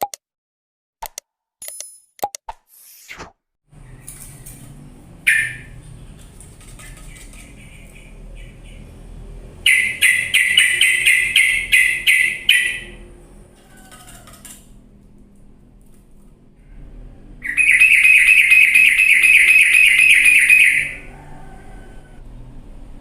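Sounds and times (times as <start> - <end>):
bird chattering notes: 5.2 - 9.0, 9.6 - 13.0, 17.4 - 21.1
bird sharp call: 5.3 - 5.7, 9.7 - 13.0, 17.4 - 21.1.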